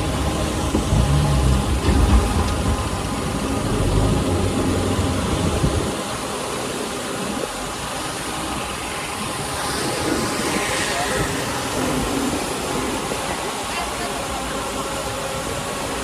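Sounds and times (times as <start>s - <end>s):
heavy diesel engine rumbling: 0.0s - 16.0s.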